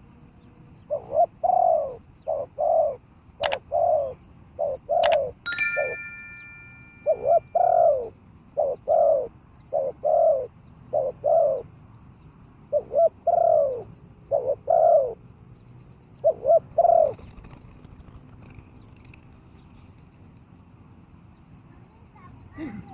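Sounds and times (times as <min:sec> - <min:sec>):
dove cooing: 0:00.8 - 0:05.4, 0:07.0 - 0:11.7, 0:12.7 - 0:15.2, 0:16.2 - 0:19.0.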